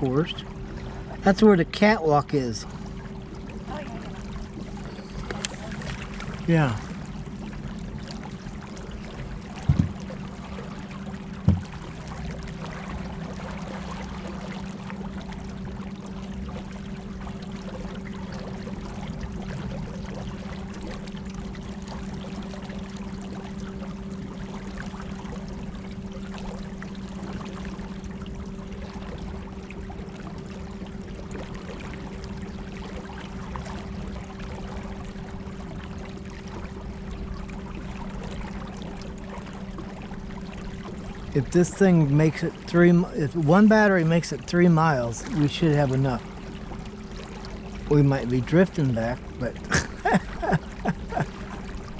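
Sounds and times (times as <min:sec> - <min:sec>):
moving water: 0:00.0 - 0:51.9
trolling motors humming: 0:00.0 - 0:51.9
short knocks: 0:09.6 - 0:10.1, 0:11.4 - 0:11.8.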